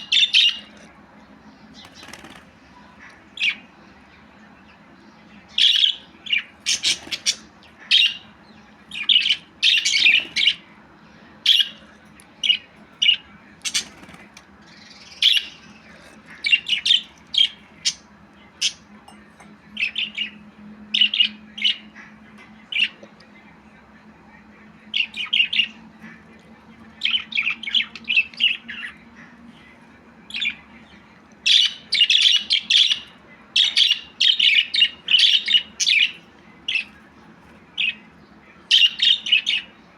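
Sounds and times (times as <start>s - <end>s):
budgerigar chirping and squawking: 0.0s - 0.8s, 5.5s - 10.7s, 12.4s - 18.9s, 31.5s - 36.9s
faint background hum: 0.0s - 39.9s.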